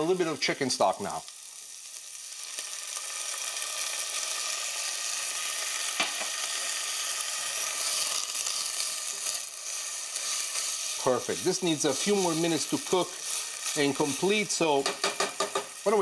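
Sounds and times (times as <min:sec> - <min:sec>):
food sizzling in a saucepan: 0:00.0 - 0:16.0
spatula stirring: 0:07.8 - 0:15.8.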